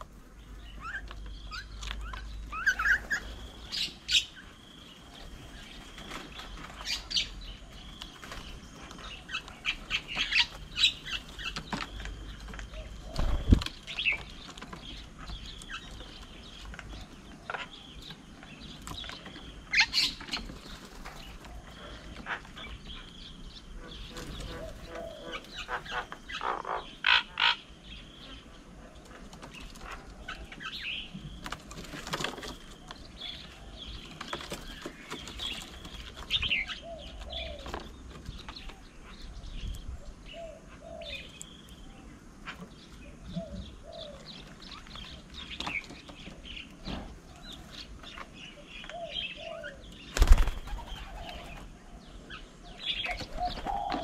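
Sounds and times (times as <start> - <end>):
birds chirping and calling: 0.0 - 54.0
bird wing flaps: 50.1 - 51.6.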